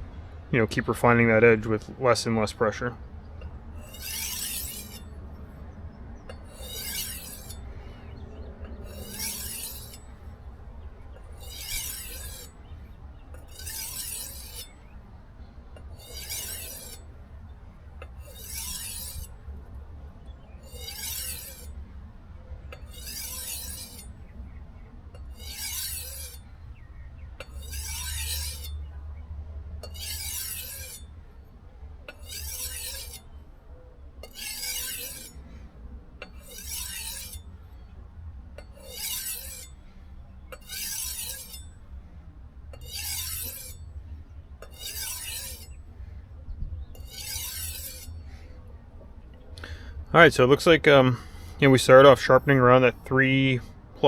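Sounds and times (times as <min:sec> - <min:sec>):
knife scraping on whetstone: 0:03.8 - 0:05.2, 0:06.2 - 0:10.3, 0:11.1 - 0:15.0, 0:15.8 - 0:17.1, 0:18.0 - 0:19.4, 0:20.4 - 0:21.8, 0:22.7 - 0:24.3, 0:25.1 - 0:28.8, 0:29.8 - 0:31.1, 0:32.1 - 0:33.4, 0:34.2 - 0:35.6, 0:36.2 - 0:37.9, 0:38.6 - 0:41.8, 0:42.7 - 0:45.9, 0:46.8 - 0:48.5.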